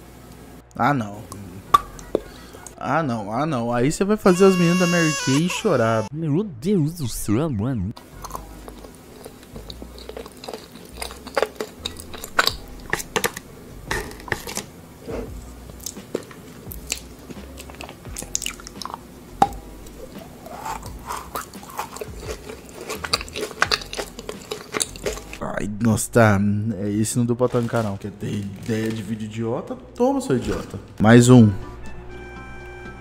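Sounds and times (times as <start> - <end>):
chocolate snapping while chewed: 8.2 - 14.7, 15.8 - 19.6, 21.0 - 25.4.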